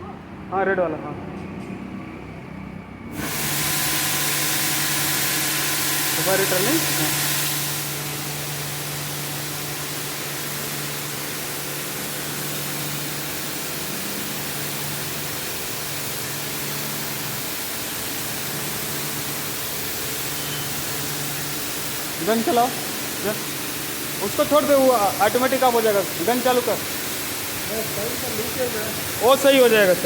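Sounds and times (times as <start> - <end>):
high-pressure water spraying: 3.1 - 30.0
pump humming: 3.1 - 30.0.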